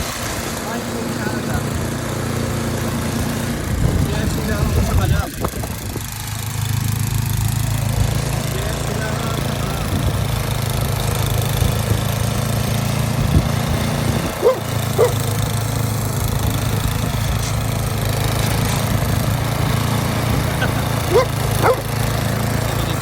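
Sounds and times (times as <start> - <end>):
dog barking: 14.4 - 15.3, 20.6 - 22.0.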